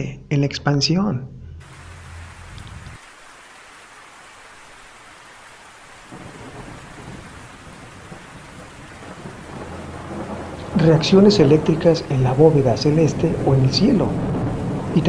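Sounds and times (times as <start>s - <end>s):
low thunder rumbling: 1.3s - 3.0s, 6.0s - 15.0s
heavy rain pouring: 1.6s - 15.0s.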